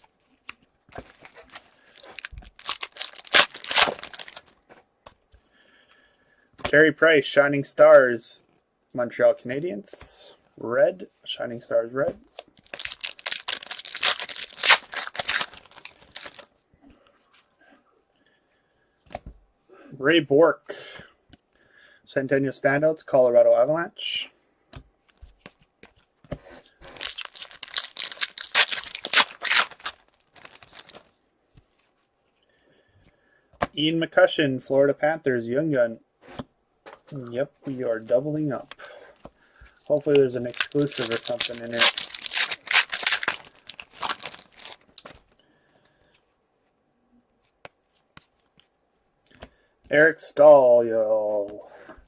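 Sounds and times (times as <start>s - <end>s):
card pack wrapper ripping: 0.9s - 4.6s, 12.6s - 16.5s, 26.9s - 31.1s, 39.9s - 45.2s.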